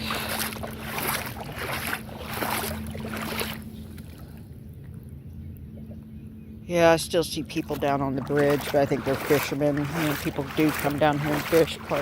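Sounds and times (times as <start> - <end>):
footsteps crunching on gravel: 0.0 - 3.6, 8.2 - 12.0
faint constant hum: 0.0 - 12.0
low steady rumble: 0.0 - 12.0.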